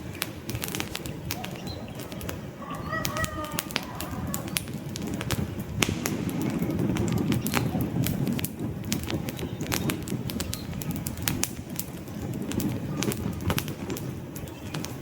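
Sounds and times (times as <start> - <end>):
campfire crackling and popping: 0.0 - 15.0
low rush of flame: 0.0 - 15.0.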